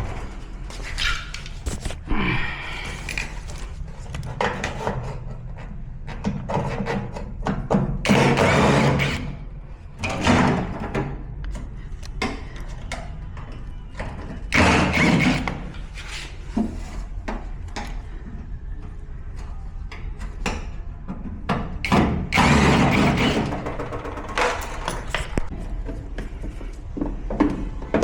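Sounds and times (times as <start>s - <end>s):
machine parts knocking and clattering: 21.8s - 25.5s.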